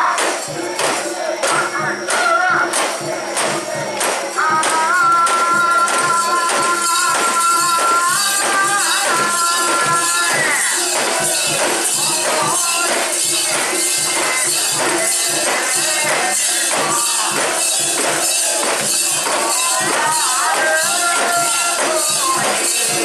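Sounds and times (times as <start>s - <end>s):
percussion beat: 0.0s - 23.0s
jingling metallic ring: 5.8s - 23.0s.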